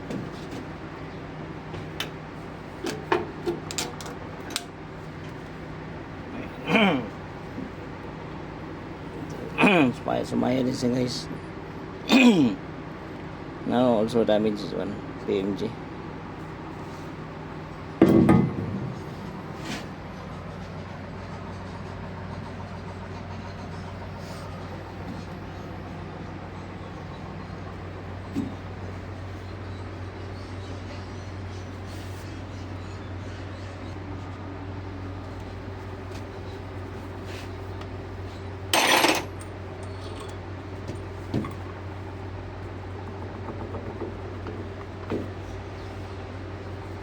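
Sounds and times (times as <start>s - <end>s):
steady machinery hum: 0.0s - 47.0s
metal tools clanking: 38.7s - 41.7s.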